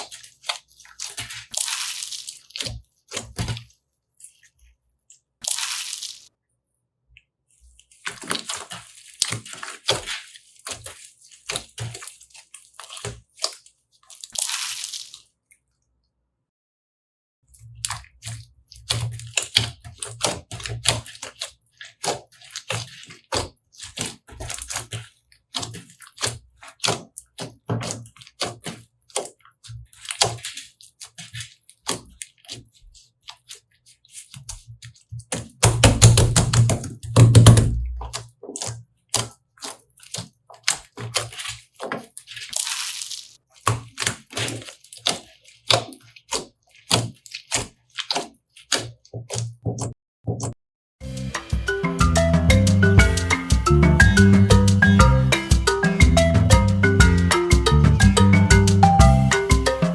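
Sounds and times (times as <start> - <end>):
slime being squished: 0.0 - 4.6, 5.4 - 6.3, 7.6 - 15.7, 17.7 - 50.0.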